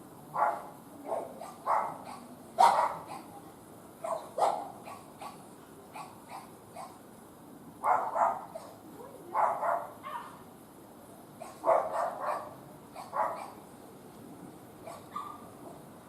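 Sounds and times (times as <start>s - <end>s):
dog barking: 0.4s - 3.3s, 4.0s - 5.4s, 6.0s - 7.0s, 7.8s - 10.4s, 11.4s - 13.6s, 14.8s - 15.4s.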